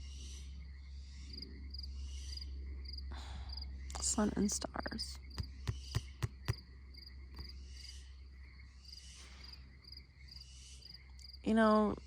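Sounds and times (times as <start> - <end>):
crickets chirping: 0.0 - 12.0
sharp clicks: 5.3 - 6.6.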